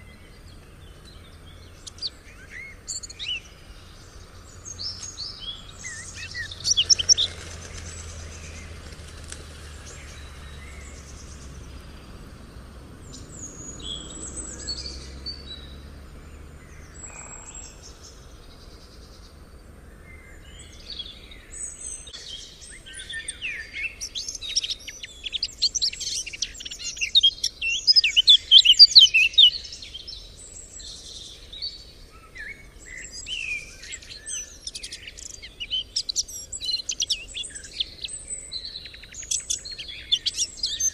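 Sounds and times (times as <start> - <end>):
faint low rumble: 0.0 - 21.6
songbirds chirping and singing: 0.0 - 40.9.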